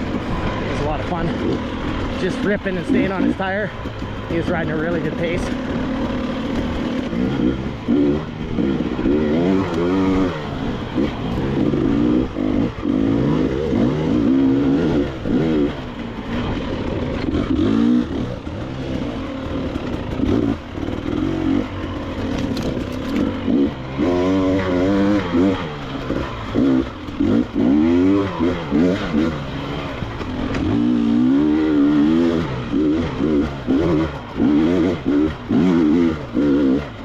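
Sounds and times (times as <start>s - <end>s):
dirt bike engine revving: 0.0s - 37.0s
bike knocking over rocks: 22.2s - 23.3s.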